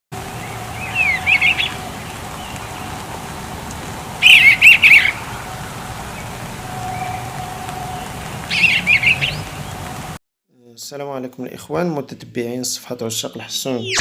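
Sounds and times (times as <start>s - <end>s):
songbird twittering: 0.4s - 1.8s, 4.2s - 5.2s, 13.6s - 14.0s.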